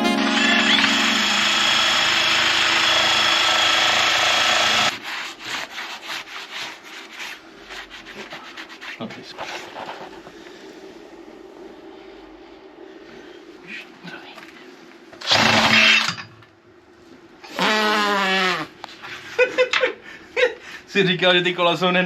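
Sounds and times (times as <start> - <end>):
power tool running: 0.0 - 4.9, 15.2 - 16.0.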